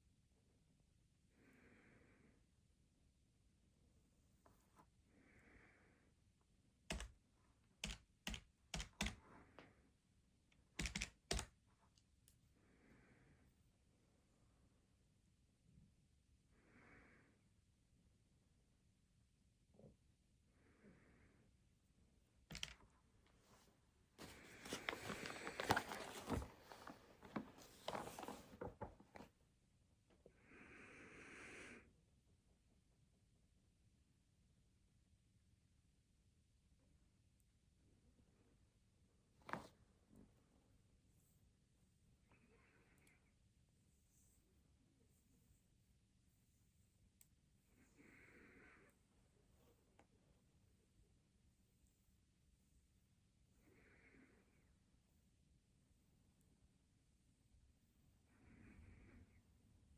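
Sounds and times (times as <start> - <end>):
sharp keystrokes: 10.8 - 11.5
rustling on desk: 23.3 - 29.3, 39.4 - 39.8.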